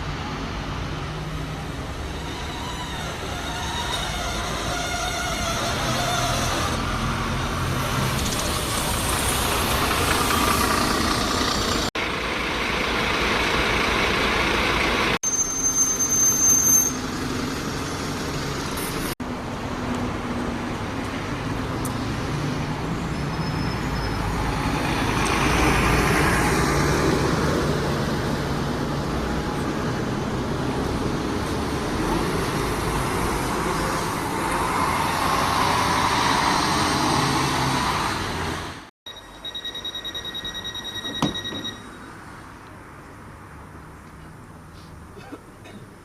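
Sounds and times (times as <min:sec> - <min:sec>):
buses and traffic passing: 0:00.0 - 0:46.0
high-pitched squeal: 0:01.4 - 0:11.9, 0:15.2 - 0:17.8.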